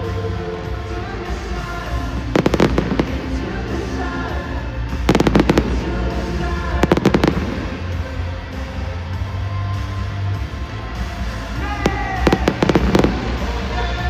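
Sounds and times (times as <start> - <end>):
background music: 0.0 - 14.0
fireworks crackling: 0.8 - 9.0, 11.0 - 14.0.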